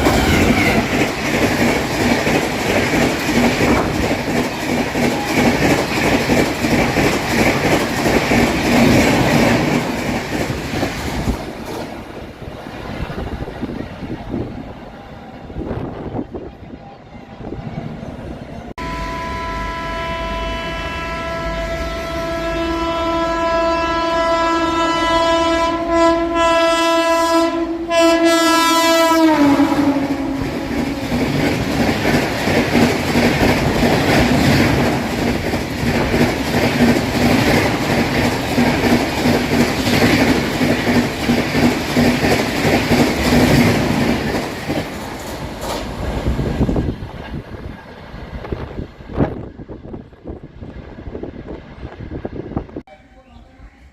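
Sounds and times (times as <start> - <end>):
train horn: 0.0 - 1.0, 18.8 - 31.4
clickety-clack of coaches: 0.0 - 12.1, 29.8 - 48.0
train rushing past: 0.0 - 53.9.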